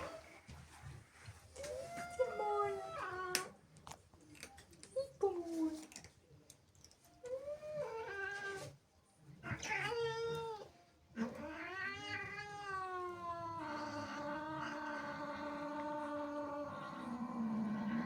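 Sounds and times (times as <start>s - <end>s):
cat yowling angrily: 11.2s - 18.0s.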